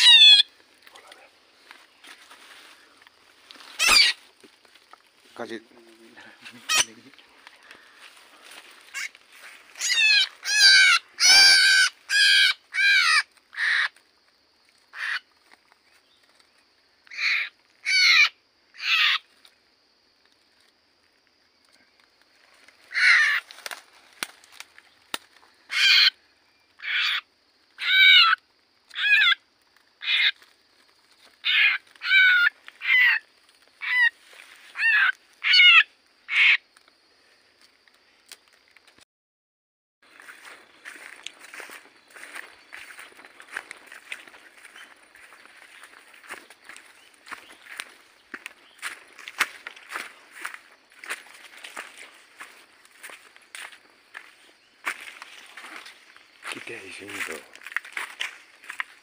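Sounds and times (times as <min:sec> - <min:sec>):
bird squawking distress calls: 0:00.0 - 0:00.6, 0:03.6 - 0:04.3, 0:06.4 - 0:07.1, 0:08.8 - 0:13.9, 0:14.9 - 0:15.2, 0:17.1 - 0:19.3, 0:22.9 - 0:23.5, 0:25.7 - 0:26.2, 0:26.8 - 0:27.2, 0:27.8 - 0:29.4, 0:30.0 - 0:30.4, 0:31.4 - 0:36.6.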